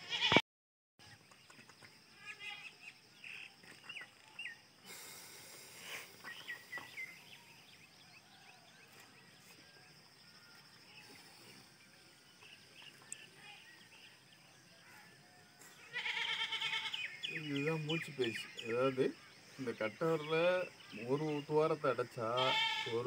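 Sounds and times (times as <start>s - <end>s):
faint bird chirps: 1.0s - 23.0s
soft rushing hiss: 4.2s - 7.8s.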